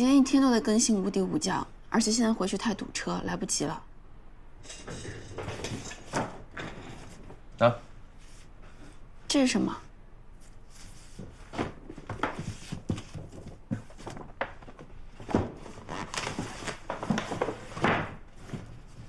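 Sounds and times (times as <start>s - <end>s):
objects knocking and rustling: 4.6s - 7.5s, 11.0s - 19.0s.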